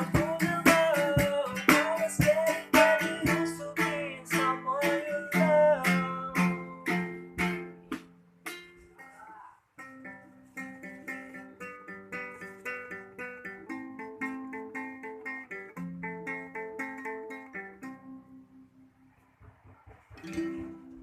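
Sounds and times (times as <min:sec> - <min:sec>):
guitar picking chords: 0:00.0 - 0:08.8, 0:09.8 - 0:21.0
faint knocks: 0:19.1 - 0:21.0.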